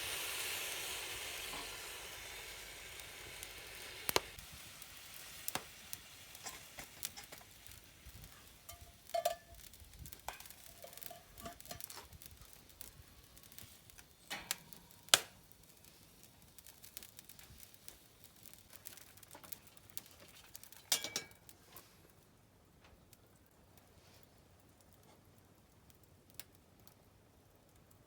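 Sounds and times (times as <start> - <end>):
dumplings sizzling in a pan: 0.0 - 22.0.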